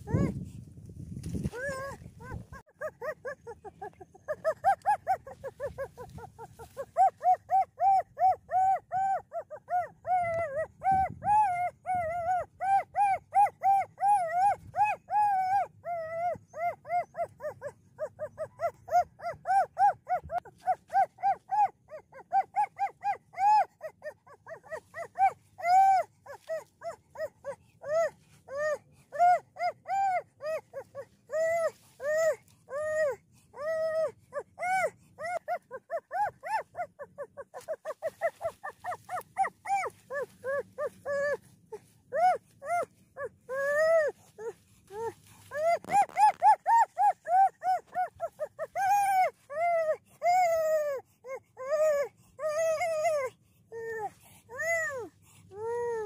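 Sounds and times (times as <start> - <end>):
dog yipping: 0.0 - 0.4, 1.2 - 56.0.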